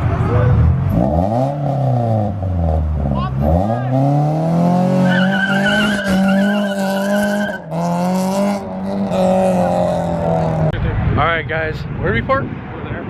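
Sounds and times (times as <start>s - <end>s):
car engine at high revs: 0.0s - 10.9s
tire squeal: 4.9s - 7.8s.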